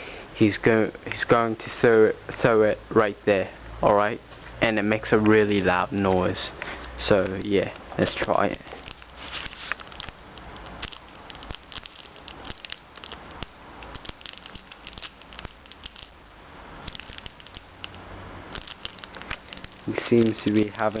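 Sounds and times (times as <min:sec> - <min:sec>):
plastic pouch crinkling: 0:06.1 - 0:16.2, 0:16.8 - 0:21.0.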